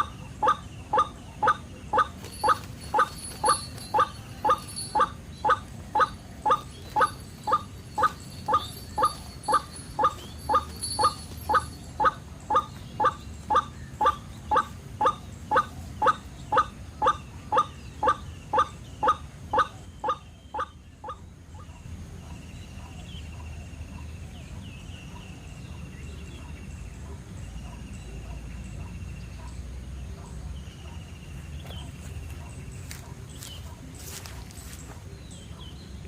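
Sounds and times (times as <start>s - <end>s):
bird harsh call: 0.0s - 21.7s.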